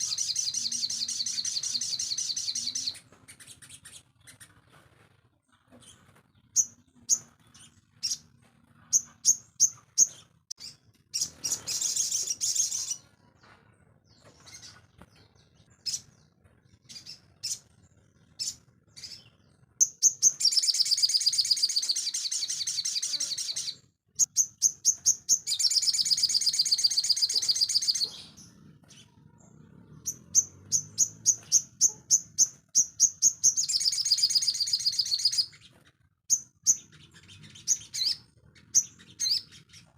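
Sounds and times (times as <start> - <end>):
bird chirping and trilling: 0.0 - 4.5, 8.9 - 13.1, 16.9 - 39.9.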